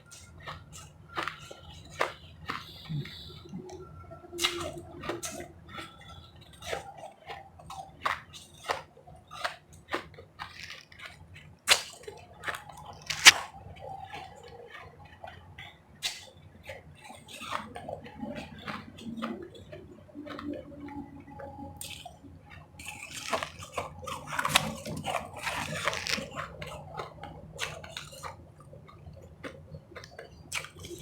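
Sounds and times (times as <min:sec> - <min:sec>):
ice being chewed: 0:04.4 - 0:16.2, 0:21.8 - 0:31.0.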